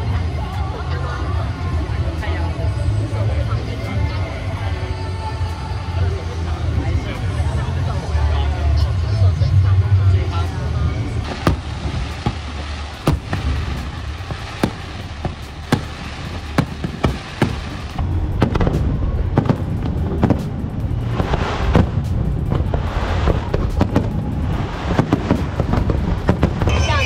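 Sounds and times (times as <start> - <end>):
music with steady bass: 0.0 - 27.0
fireworks bangs and crackling: 11.2 - 27.0.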